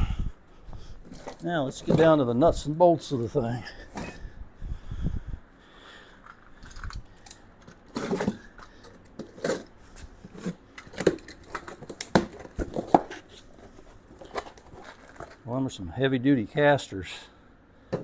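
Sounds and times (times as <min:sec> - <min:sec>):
plastic packaging crinkling: 0:10.4 - 0:15.4.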